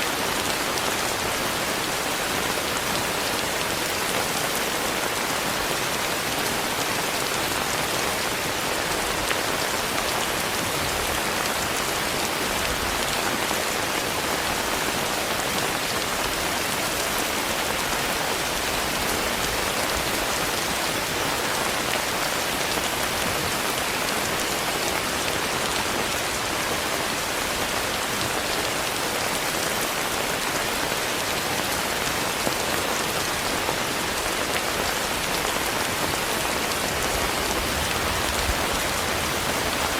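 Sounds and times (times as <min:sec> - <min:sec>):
steady rain hissing: 0:00.0 - 0:39.9
raindrops ticking: 0:37.2 - 0:39.9.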